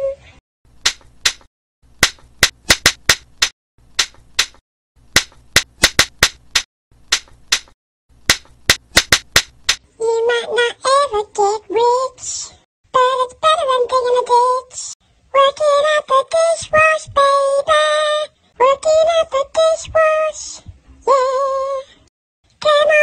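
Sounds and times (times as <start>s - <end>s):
sharp claps or slaps: 0.8s - 4.6s, 5.2s - 9.8s
high-pitched voice singing: 10.0s - 22.0s, 22.6s - 23.0s.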